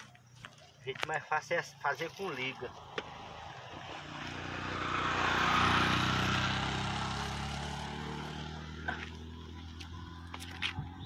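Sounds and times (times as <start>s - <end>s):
engine passing by: 2.4s - 11.0s.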